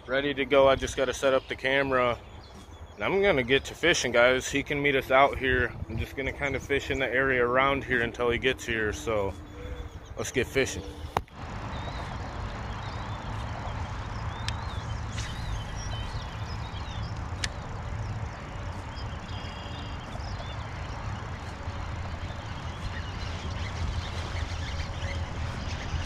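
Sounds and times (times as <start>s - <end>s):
birds chirping: 0.0s - 26.0s
low rumble: 5.0s - 26.0s
sharp clicks: 14.3s - 16.2s, 17.0s - 18.0s.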